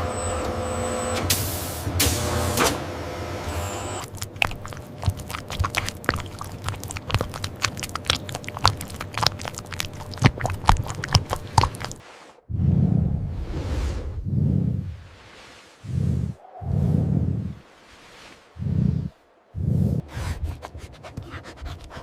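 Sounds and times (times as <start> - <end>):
sharp clicks and crunches: 4.0 - 12.0.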